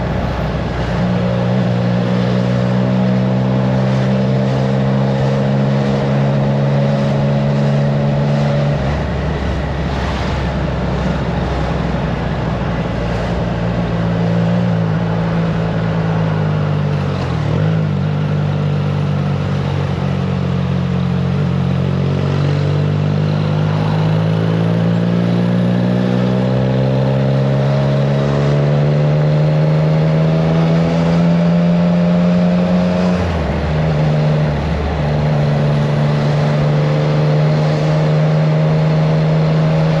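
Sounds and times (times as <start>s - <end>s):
wind rushing over microphone: 0.0s - 16.4s
motorcycle engine while riding: 0.0s - 40.0s.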